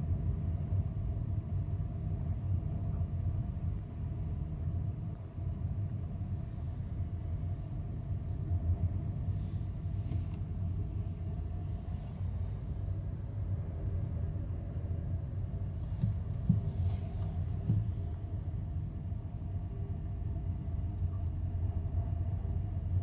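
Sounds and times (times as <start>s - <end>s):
ferry engine rumble: 5.3s - 23.0s
soft low thumps: 15.8s - 18.3s.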